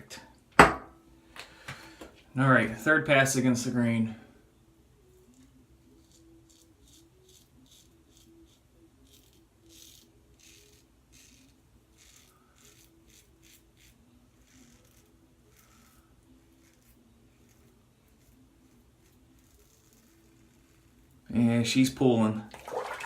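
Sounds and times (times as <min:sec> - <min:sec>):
razor scraping stubble: 0:05.2 - 0:21.3.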